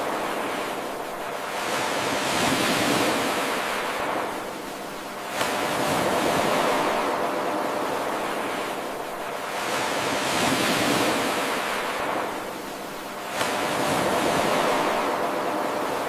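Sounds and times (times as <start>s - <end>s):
ocean waves washing onto shore: 0.0s - 16.0s.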